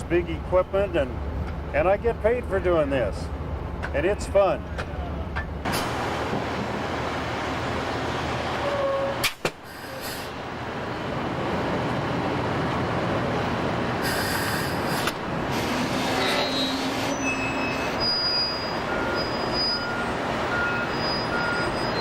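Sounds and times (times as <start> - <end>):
construction machinery rumbling: 0.0 - 22.0
backup alarm beeping: 17.4 - 22.0.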